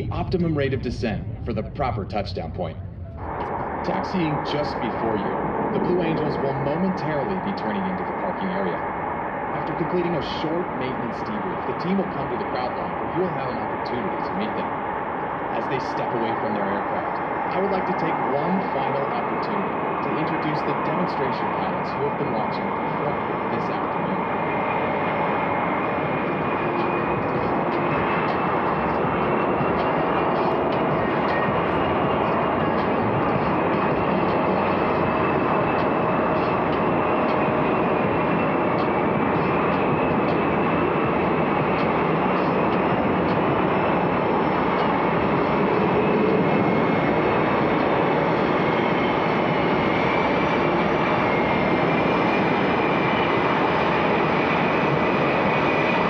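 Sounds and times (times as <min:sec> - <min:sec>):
jet engines idling: 0:00.0 - 0:56.0.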